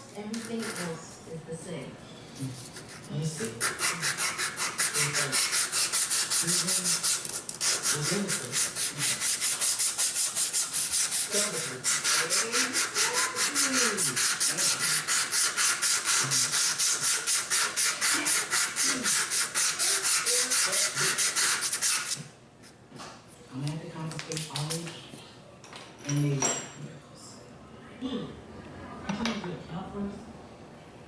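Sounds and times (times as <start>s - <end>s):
sandpaper rubbing on wood: 2.7s - 22.2s.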